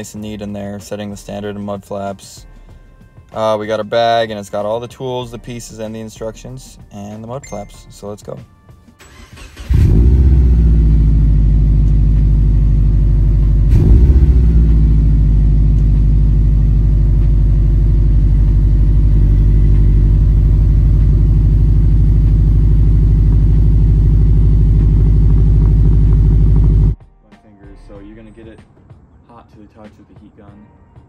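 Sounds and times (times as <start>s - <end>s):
car engine idling: 9.1s - 27.0s
engine throttle blip: 9.1s - 27.0s.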